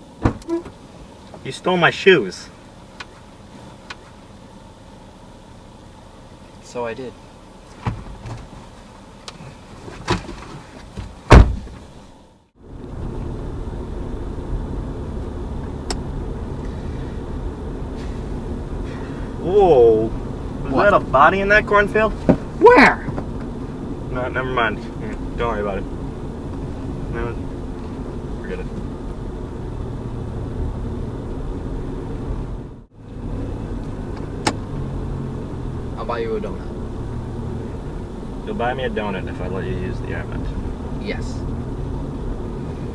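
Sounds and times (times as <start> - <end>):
car road noise hum: 0.0 - 42.9
heavy thump: 0.2 - 0.7, 7.8 - 8.5, 9.9 - 11.9, 22.1 - 23.6
light knocks in car: 10.0 - 11.9, 22.2 - 22.5.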